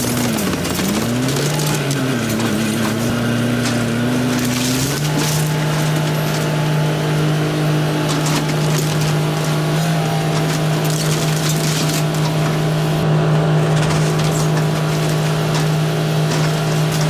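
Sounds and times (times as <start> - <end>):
boards cracking and splintering: 0.0 - 17.0
excavator engine and hydraulics: 0.0 - 17.0.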